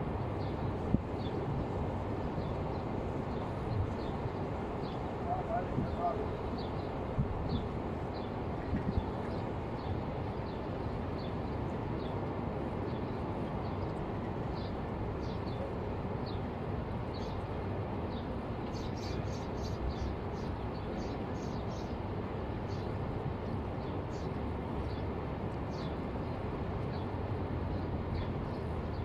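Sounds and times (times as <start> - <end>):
small birds chirping: 18.1 - 22.0, 22.6 - 23.0, 25.7 - 29.0.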